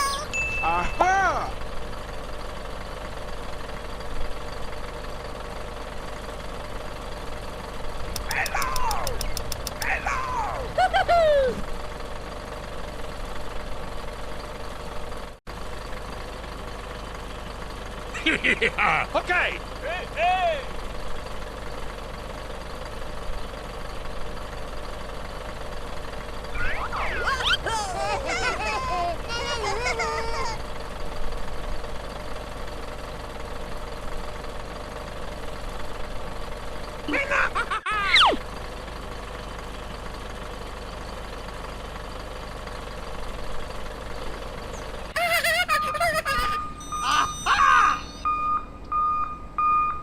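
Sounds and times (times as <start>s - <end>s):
engine-like idling hum: 0.0s - 50.0s
high wavering voice-like sound: 26.6s - 28.3s.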